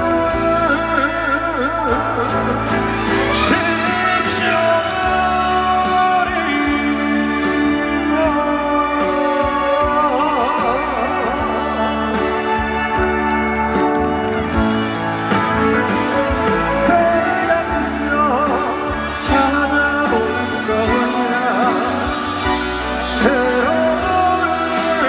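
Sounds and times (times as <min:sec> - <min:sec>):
band playing trot song: 0:11.3 - 0:25.0.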